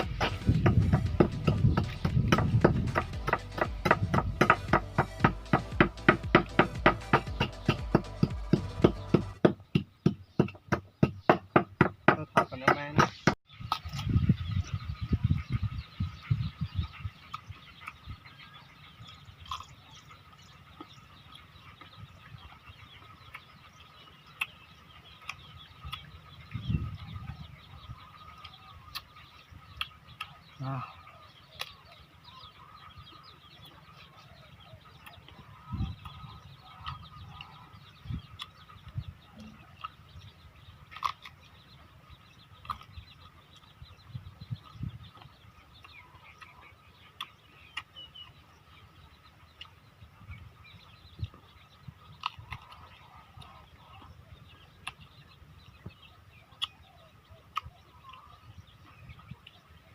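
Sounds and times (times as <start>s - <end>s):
soft low thumps: 0.0s - 13.4s
chickens calling: 0.0s - 59.9s
faint background chirping: 0.0s - 59.9s
person chewing: 19.1s - 19.9s, 40.8s - 41.4s, 42.6s - 43.7s, 52.2s - 53.0s.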